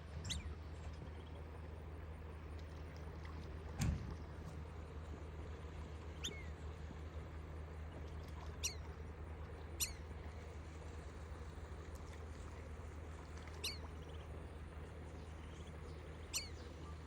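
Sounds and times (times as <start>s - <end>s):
low background hum: 0.0s - 17.0s
ducklings peeping: 0.2s - 1.4s, 6.1s - 6.5s, 8.4s - 9.0s, 9.7s - 10.1s, 13.5s - 17.0s.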